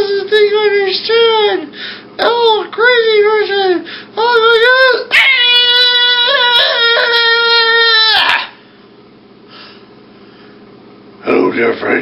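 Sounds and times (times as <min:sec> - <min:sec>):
person wailing cry: 0:04.2 - 0:08.6.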